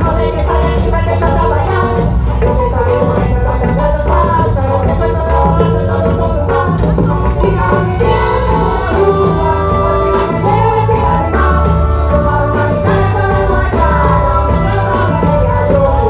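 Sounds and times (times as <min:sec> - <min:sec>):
fast shaker percussion: 0:00.0 - 0:16.0
person singing: 0:00.0 - 0:16.0
steady bass line: 0:00.0 - 0:16.0.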